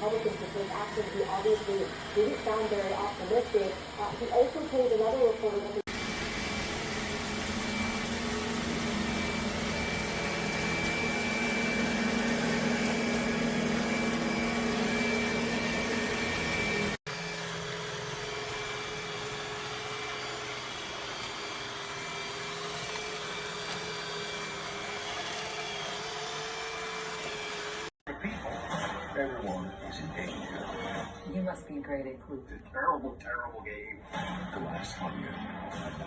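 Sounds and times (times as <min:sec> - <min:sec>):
robot vacuum whirring: 0:00.0 - 0:28.0.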